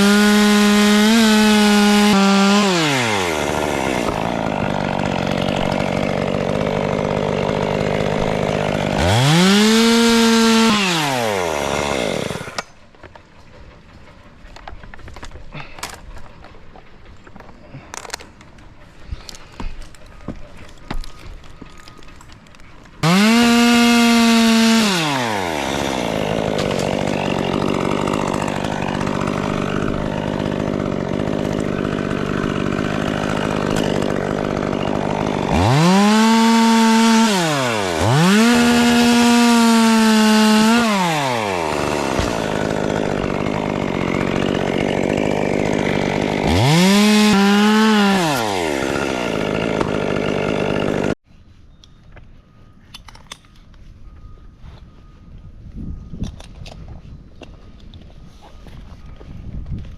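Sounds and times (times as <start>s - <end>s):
chainsaw idling and revving: 0.0s - 12.8s, 23.0s - 51.2s.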